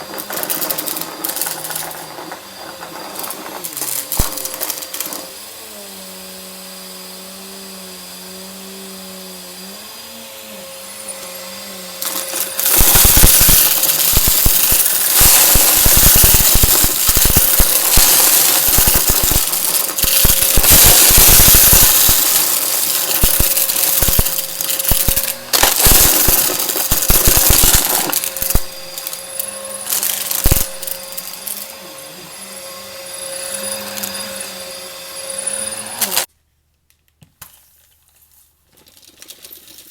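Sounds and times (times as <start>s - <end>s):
debris crackling in vacuum: 0.0s - 5.2s, 12.0s - 31.8s
vacuum cleaner humming: 0.0s - 36.3s.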